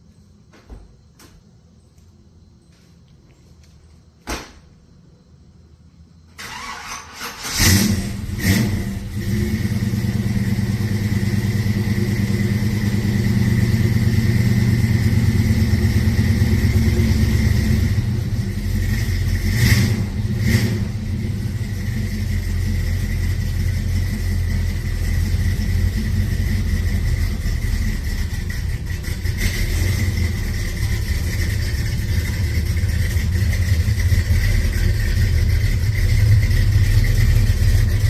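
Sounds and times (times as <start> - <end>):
engine starting and idling: 6.3 - 38.0.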